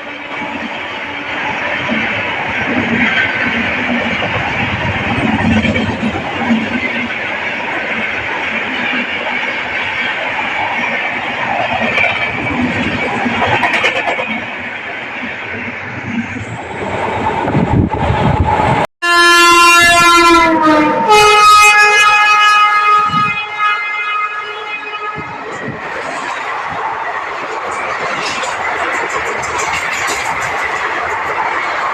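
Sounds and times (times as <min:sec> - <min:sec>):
express train rushing past: 0:00.0 - 0:31.9
locomotive horn blowing: 0:19.0 - 0:25.5.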